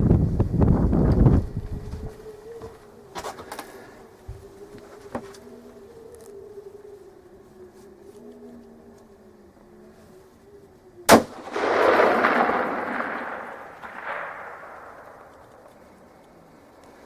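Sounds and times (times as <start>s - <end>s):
rifle shot crack: 11.1s - 16.4s
rumbling echo: 11.1s - 16.8s.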